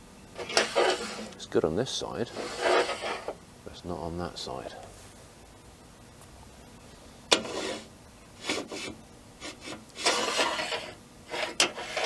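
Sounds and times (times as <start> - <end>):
object scraping across wood: 0.4 - 1.4, 2.3 - 3.4, 7.3 - 12.0.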